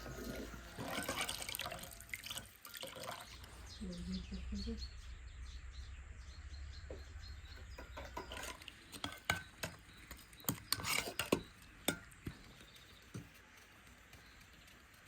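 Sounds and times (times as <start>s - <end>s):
utensils clinking against dishes: 0.0s - 3.4s, 7.5s - 13.4s.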